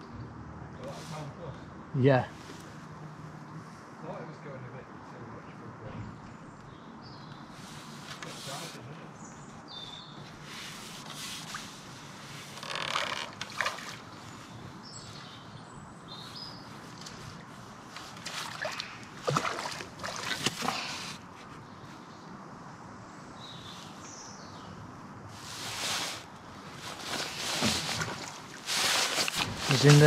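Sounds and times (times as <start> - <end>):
fish splashing water: 13.3 - 14.1, 18.0 - 21.0.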